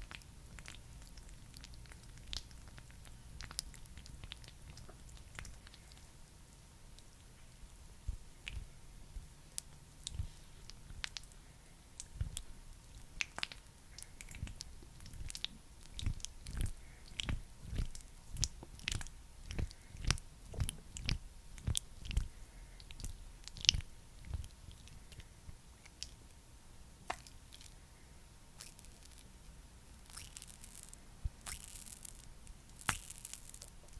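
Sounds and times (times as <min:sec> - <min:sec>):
squishy pats of skincare product: 0:12.0 - 0:26.2.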